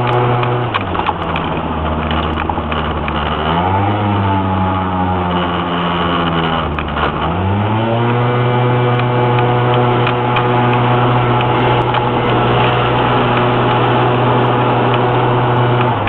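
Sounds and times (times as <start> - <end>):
car engine climbing hill: 0.0 - 16.0.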